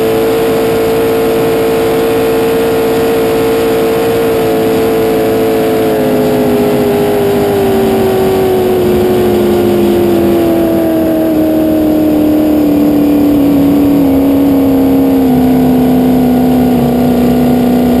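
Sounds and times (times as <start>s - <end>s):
boat engine revs falling: 0.0s - 18.0s.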